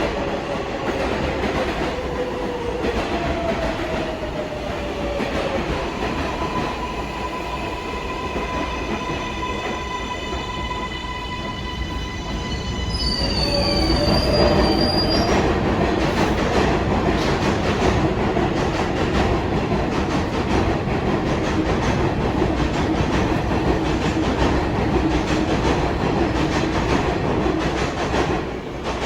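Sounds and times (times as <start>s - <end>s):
train rumble with rail clatter: 0.0s - 29.0s
train wheels squealing: 7.2s - 15.5s.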